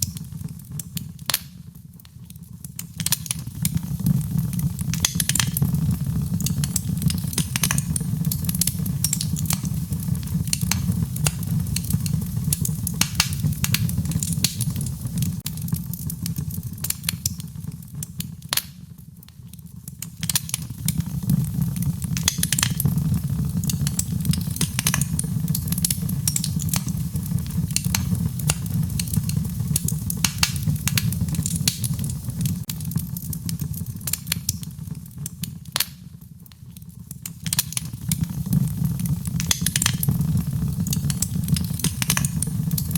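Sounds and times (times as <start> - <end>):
fire flames rumbling: 0.0 - 18.2, 19.7 - 35.3, 37.5 - 42.9
wood fire popping: 0.0 - 42.9.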